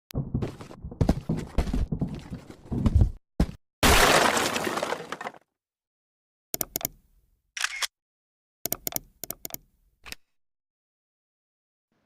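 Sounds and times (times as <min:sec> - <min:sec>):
camera shutter clicks: 0:07.6 - 0:07.9.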